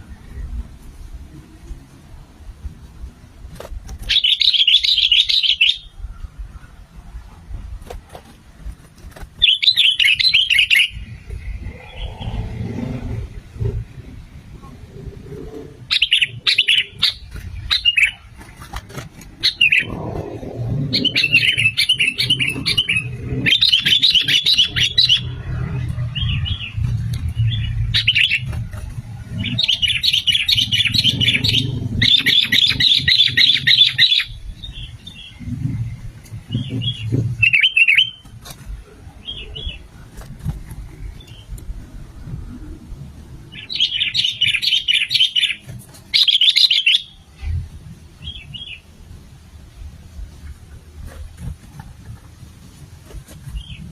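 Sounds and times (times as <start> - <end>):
steady low rumble: 0.0 - 46.2
bird chattering song: 4.0 - 6.7, 9.4 - 12.5, 15.9 - 18.4, 19.4 - 28.6, 29.3 - 35.8, 36.5 - 38.3, 43.5 - 47.2.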